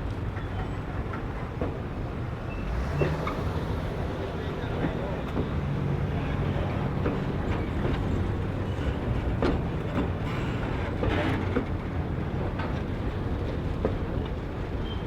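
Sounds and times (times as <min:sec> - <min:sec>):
train rumbling on track: 0:00.0 - 0:15.0
wheels knocking and clicking: 0:06.7 - 0:15.0.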